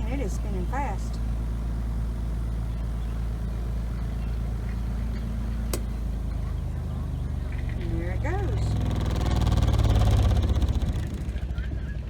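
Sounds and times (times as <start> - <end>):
washer motor hum: 0.0 - 11.4
sharp click: 5.7 - 5.9.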